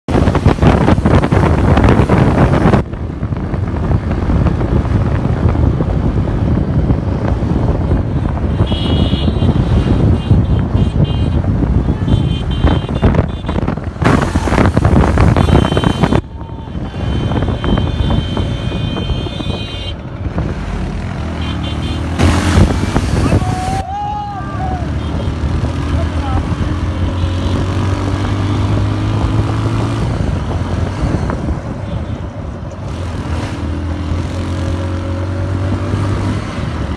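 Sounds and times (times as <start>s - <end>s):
road traffic rumble: 0.0s - 36.9s
wind buffeting microphone: 0.1s - 21.4s, 22.0s - 36.9s
high-pitched vehicle horns: 8.1s - 13.8s, 15.2s - 20.0s, 21.3s - 22.3s, 24.8s - 25.4s.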